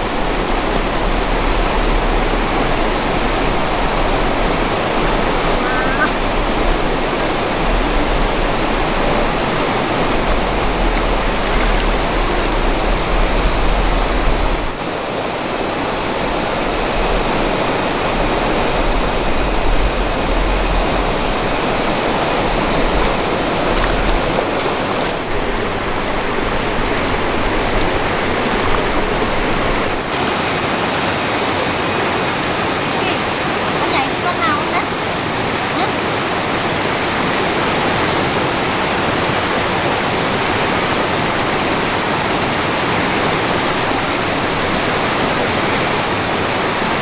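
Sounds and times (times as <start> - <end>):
mountain stream rushing: 0.0 - 47.0.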